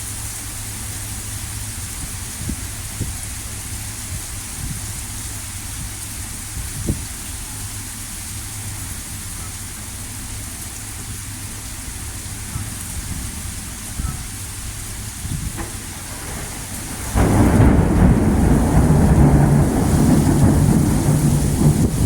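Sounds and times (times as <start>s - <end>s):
heavy rain hissing: 0.0s - 22.0s
low rumble: 11.2s - 22.0s.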